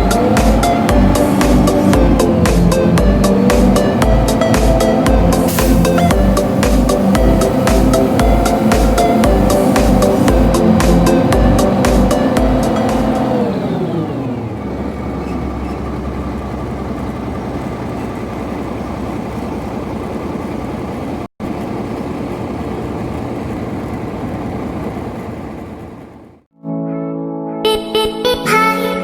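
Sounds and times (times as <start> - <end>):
background music: 0.0 - 13.4, 26.6 - 29.0
engine running: 0.0 - 26.5.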